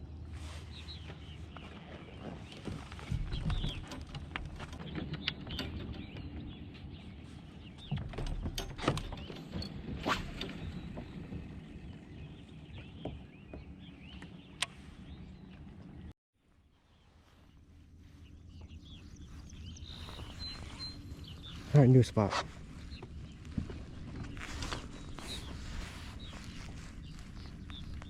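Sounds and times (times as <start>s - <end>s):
knocks and clicks against hull: 1.8s - 14.9s
kayak moving through water: 9.2s - 16.1s, 17.2s - 28.0s.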